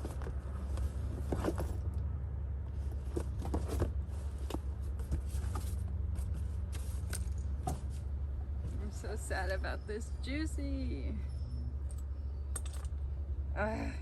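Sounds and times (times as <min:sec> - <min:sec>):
purse rustling and clicking: 0:00.0 - 0:02.1, 0:02.7 - 0:08.1, 0:11.8 - 0:13.1.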